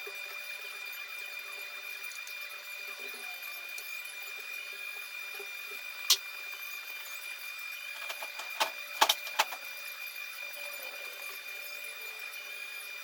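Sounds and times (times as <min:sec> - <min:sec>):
steady high-pitched whine: 0:00.0 - 0:13.0
metallic clicks and clinks: 0:08.0 - 0:09.6.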